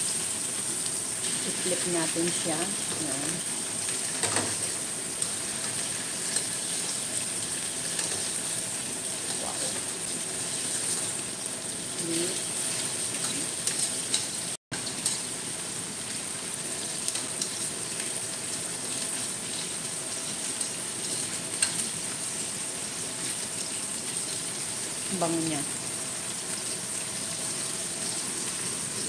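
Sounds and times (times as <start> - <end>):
chicken sizzling in oil: 0.0 - 29.0
metal tongs clicking on pan: 13.1 - 15.2, 21.6 - 21.8.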